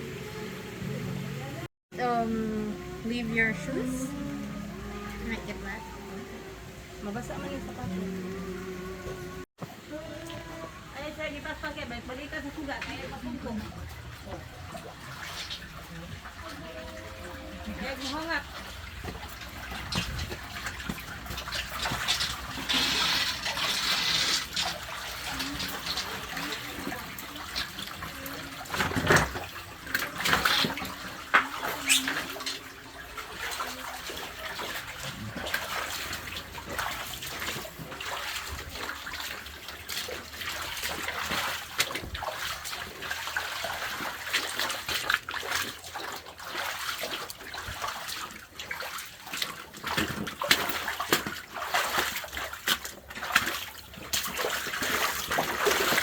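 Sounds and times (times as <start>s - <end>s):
running water: 0.0s - 56.0s
splashes and knocks: 12.3s - 56.0s.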